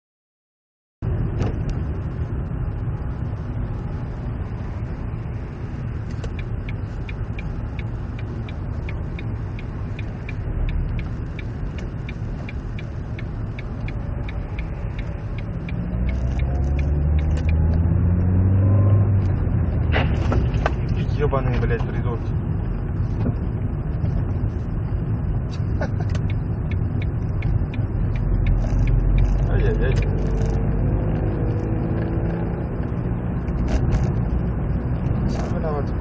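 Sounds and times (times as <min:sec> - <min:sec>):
car engine and road noise: 0:01.0 - 0:36.0
light ticking: 0:06.1 - 0:17.7, 0:25.5 - 0:30.6.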